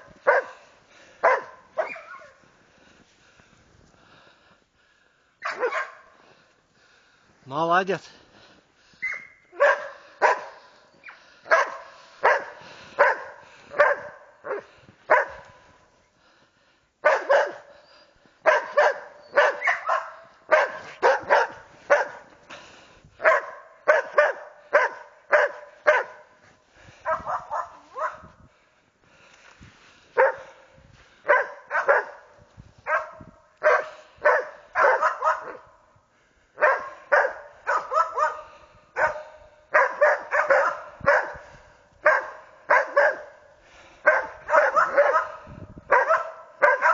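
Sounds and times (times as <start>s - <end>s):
dogs barking sharply: 0.0s - 2.4s, 5.4s - 6.2s, 9.0s - 15.7s, 17.0s - 17.7s, 18.4s - 22.3s, 23.2s - 26.4s, 27.0s - 28.3s, 30.2s - 30.6s, 31.2s - 35.7s, 36.6s - 41.4s, 42.0s - 46.9s.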